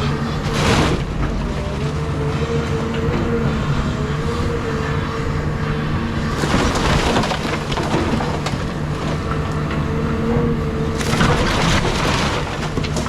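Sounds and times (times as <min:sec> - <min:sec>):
excavator diesel engine running: 0:00.0 - 0:13.0
timber and debris crunching: 0:00.0 - 0:13.0.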